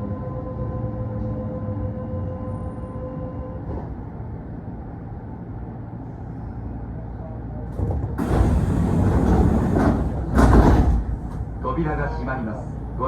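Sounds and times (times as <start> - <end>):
train equipment rumble: 7.6 - 12.1.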